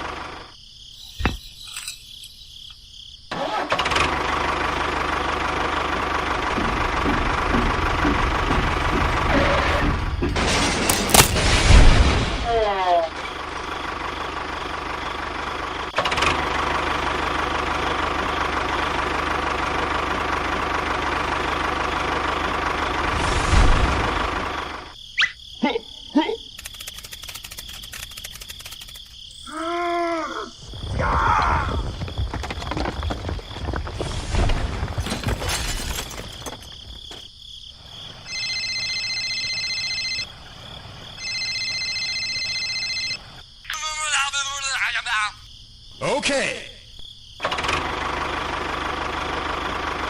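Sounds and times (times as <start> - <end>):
faint high pulsing chirp: 0.9 - 2.8, 25.1 - 27.0
clattering and rustling: 6.0 - 11.8, 31.8 - 37.3
sharp clicks: 26.6 - 29.2
electronic ringing tone: 38.3 - 40.3, 41.2 - 43.3.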